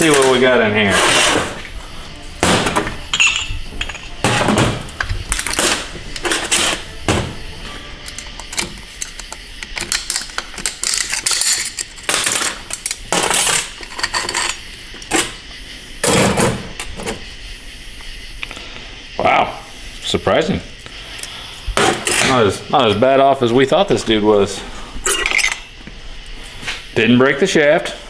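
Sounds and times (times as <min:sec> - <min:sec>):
pick scraping metal: 0:00.0 - 0:01.7, 0:05.4 - 0:09.4
metal plates clinking and clattering: 0:02.8 - 0:07.3, 0:08.0 - 0:15.4, 0:25.1 - 0:25.7.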